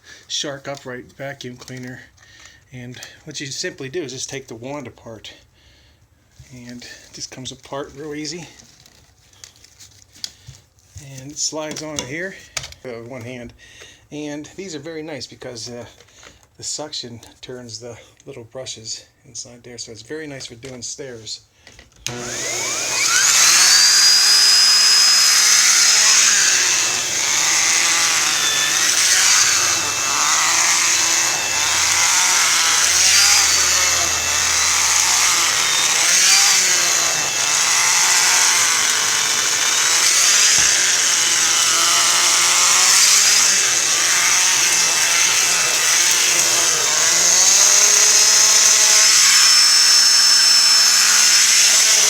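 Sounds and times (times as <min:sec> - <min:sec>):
vacuum cleaner motor whine: 0:22.1 - 0:52.0.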